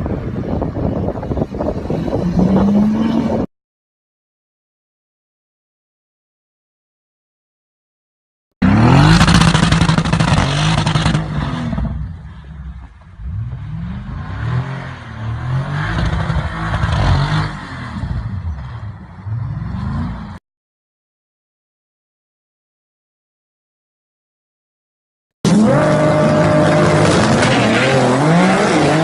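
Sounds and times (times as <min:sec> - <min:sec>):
vehicle engine revving: 0:01.8 - 0:03.5, 0:08.6 - 0:12.2, 0:13.2 - 0:20.4, 0:25.5 - 0:29.0.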